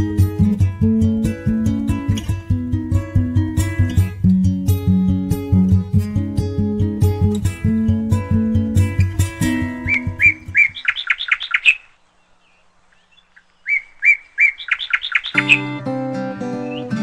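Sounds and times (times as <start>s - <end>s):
acoustic guitar music: 0.0s - 10.8s, 15.3s - 17.0s
bird chirping phrase: 7.6s - 17.0s.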